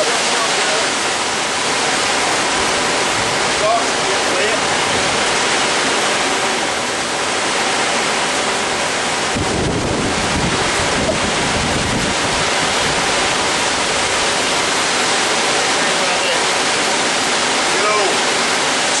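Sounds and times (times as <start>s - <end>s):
heavy rain pouring: 0.0s - 19.0s
low thunder rumble: 9.1s - 14.2s.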